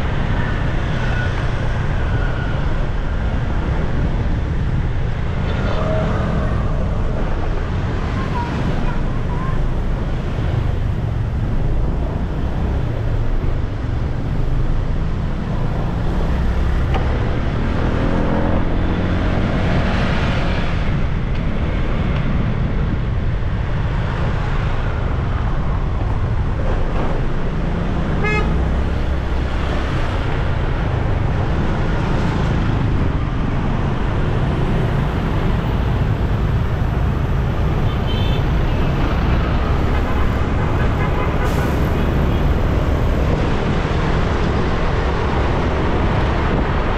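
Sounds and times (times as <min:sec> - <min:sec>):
vehicle horn toot: 0:28.2 - 0:28.6.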